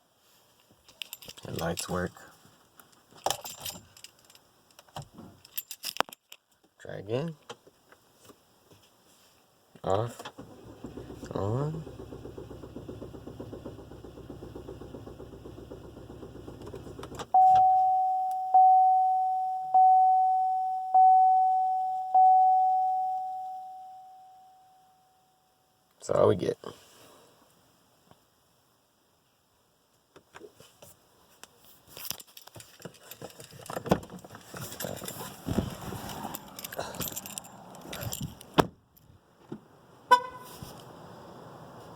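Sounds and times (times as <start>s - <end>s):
handling clicks and rustling: 0.6s - 6.8s, 30.2s - 39.1s
starter cranking engine: 10.4s - 17.2s
single-tone warning chime: 17.4s - 25.5s.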